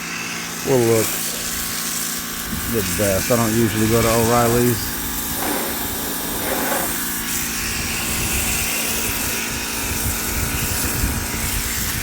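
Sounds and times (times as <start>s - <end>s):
pressure washer motor humming: 0.0s - 12.0s
water spraying from wand: 0.0s - 12.0s.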